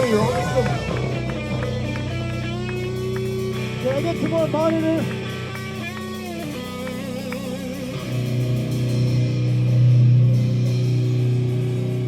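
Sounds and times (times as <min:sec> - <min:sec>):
electric guitar through amplifier: 0:00.0 - 0:12.0.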